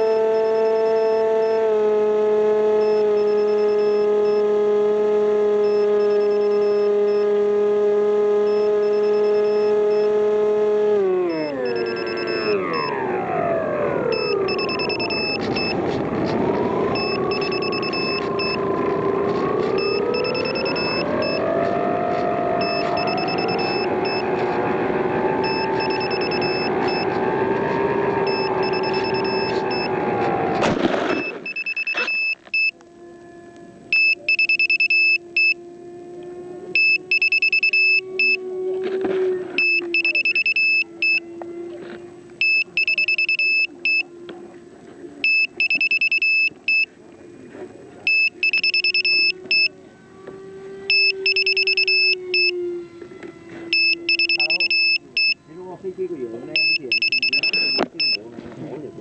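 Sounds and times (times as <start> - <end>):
high-pitched electronic beeping: 0.0 - 1.7, 2.6 - 4.9, 5.6 - 7.7, 8.3 - 16.0, 16.9 - 24.6, 25.3 - 27.5, 28.1 - 30.0, 31.1 - 32.8, 33.9 - 35.6, 36.8 - 38.4, 39.6 - 41.3, 42.4 - 44.1, 45.2 - 46.9, 48.1 - 49.7, 50.9 - 52.6, 53.7 - 55.4, 56.5 - 58.2.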